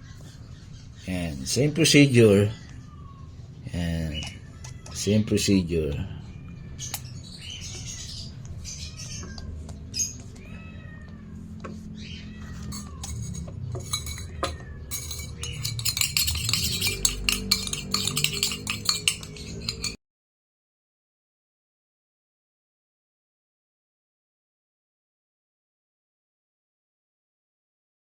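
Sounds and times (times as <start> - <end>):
rapid clicks and clinks: 12.6 - 20.0.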